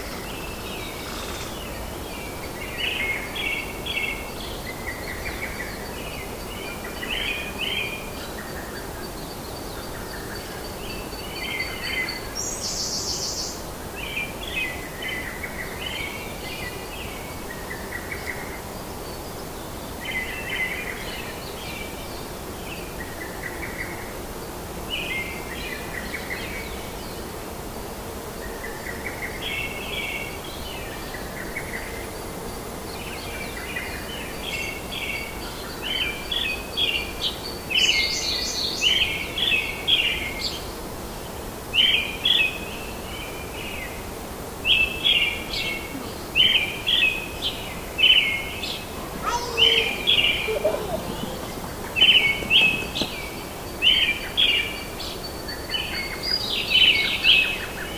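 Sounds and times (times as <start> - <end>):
background hiss: 0.0 - 57.9
faint high insect tone: 0.0 - 57.9
bird chirping: 48.1 - 56.0.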